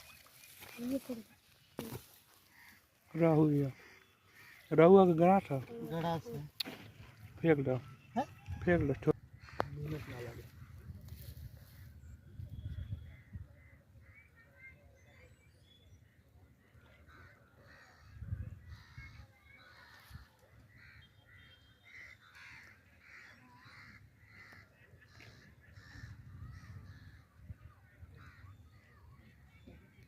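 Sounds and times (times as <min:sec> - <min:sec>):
crows cawing: 0:01.8 - 0:06.8, 0:09.2 - 0:11.9, 0:17.0 - 0:29.0.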